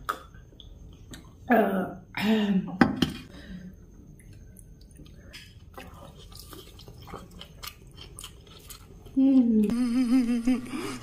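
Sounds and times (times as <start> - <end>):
people chewing and biting: 4.2 - 11.0.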